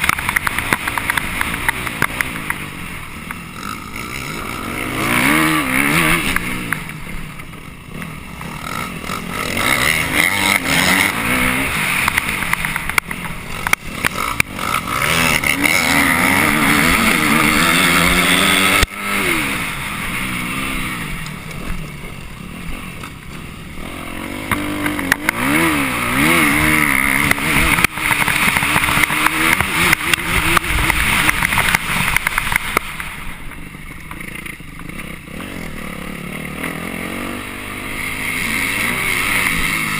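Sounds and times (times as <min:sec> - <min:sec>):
dirt bike engine revving: 0:00.0 - 0:39.9
sharp knocks and clatters: 0:12.0 - 0:14.6.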